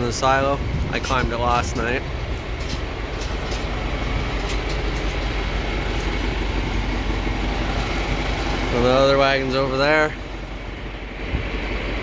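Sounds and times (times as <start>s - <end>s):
tractor engine running: 0.0s - 12.0s
metallic rattles and clicks: 0.8s - 6.3s.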